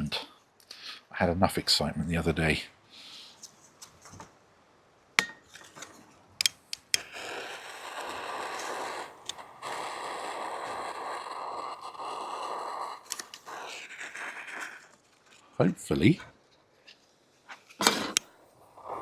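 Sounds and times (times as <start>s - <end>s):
sharp clicks: 6.4s - 7.2s, 13.0s - 13.6s
gas stove hissing: 6.4s - 14.6s, 17.8s - 19.0s.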